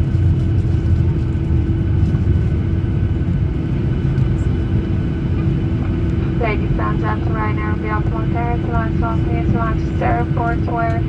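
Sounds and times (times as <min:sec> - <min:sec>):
steady cabin hum: 0:02.6 - 0:11.0.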